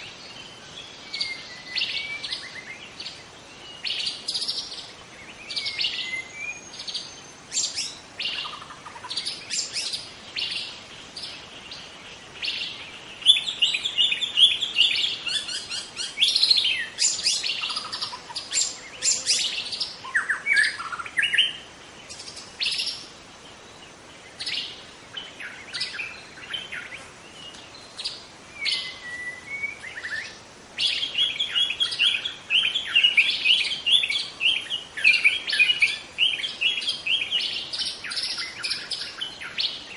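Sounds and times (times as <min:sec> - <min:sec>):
bird singing chirps and whistles: 0:00.0 - 0:11.8, 0:12.4 - 0:23.1, 0:24.3 - 0:39.9.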